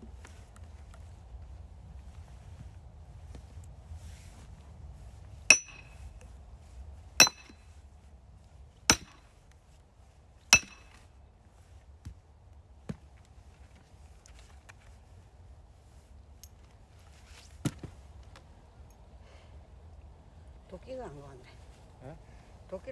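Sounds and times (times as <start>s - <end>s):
hammer blows on metal: 5.5s - 6.0s, 7.2s - 7.6s, 8.9s - 9.2s, 10.6s - 11.0s.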